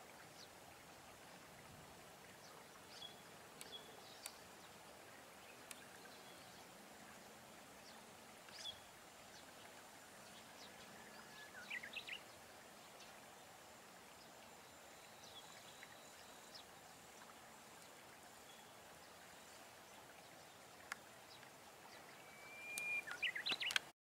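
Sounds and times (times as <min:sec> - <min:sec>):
faint steady hiss: 0:00.0 - 0:23.9
bird calls and chirps: 0:02.3 - 0:04.5, 0:07.8 - 0:13.1, 0:18.4 - 0:23.9.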